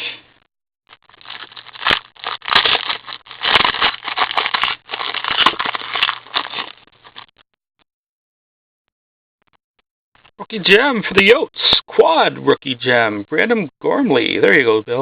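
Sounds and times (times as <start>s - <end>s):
wrapper crinkling and tearing: 0.9s - 7.3s.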